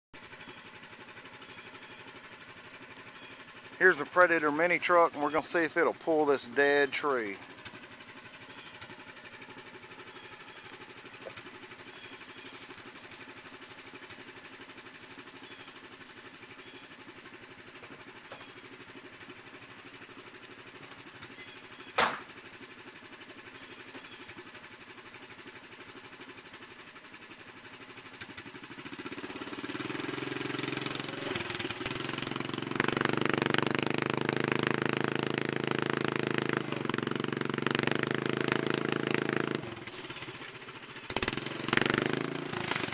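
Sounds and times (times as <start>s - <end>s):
small engine idling: 0.2s - 42.9s
sharp knock: 22.0s - 22.3s
engine revving under load: 28.9s - 42.9s.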